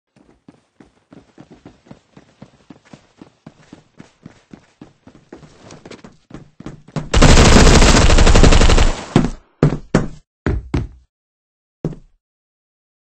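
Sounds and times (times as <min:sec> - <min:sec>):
rapid bangs: 0:07.1 - 0:09.4.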